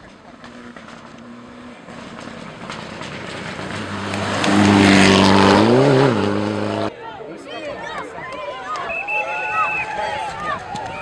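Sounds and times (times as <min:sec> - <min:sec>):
rally car passing at speed: 0:00.1 - 0:06.9.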